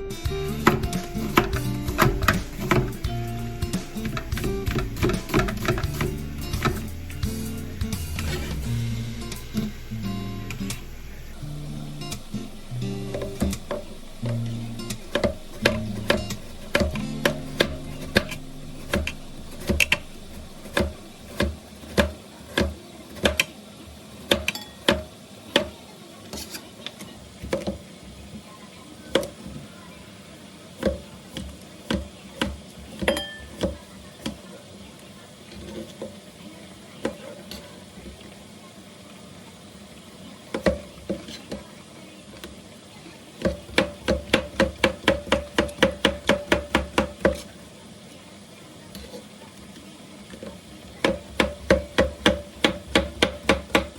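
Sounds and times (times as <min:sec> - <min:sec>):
knife chopping on cutting board: 0:00.6 - 0:03.1, 0:03.7 - 0:08.6, 0:14.9 - 0:23.5, 0:43.4 - 0:47.5, 0:51.0 - 0:53.9.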